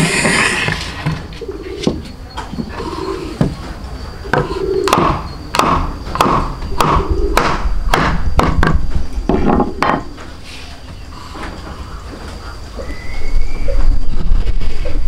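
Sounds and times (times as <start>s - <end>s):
sharp knocks with ringing: 4.3s - 10.1s.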